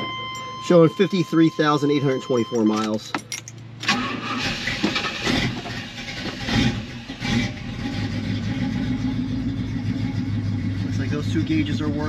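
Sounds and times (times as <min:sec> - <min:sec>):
car engine starting and revving: 0:03.8 - 0:12.0.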